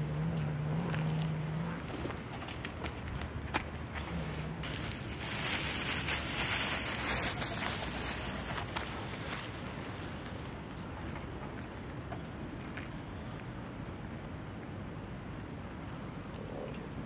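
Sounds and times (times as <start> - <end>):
light rain: 4.6 - 17.0
raindrop ticks: 11.1 - 17.0.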